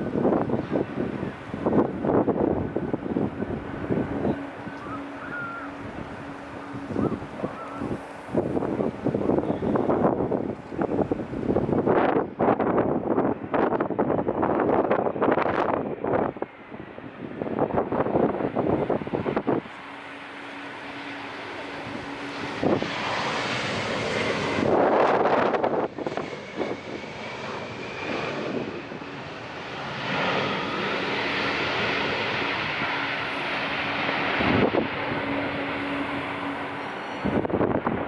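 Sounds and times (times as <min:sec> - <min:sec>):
airliner engines rushing: 0:00.0 - 0:38.0
wind buffeting microphone: 0:00.0 - 0:38.0.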